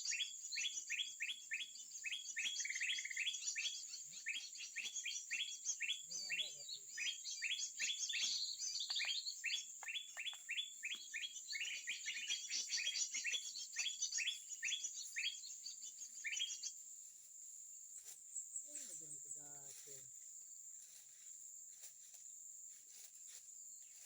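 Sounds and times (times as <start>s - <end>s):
rapid rising bird chirps: 0.0s - 16.7s
high insect drone: 16.8s - 24.0s.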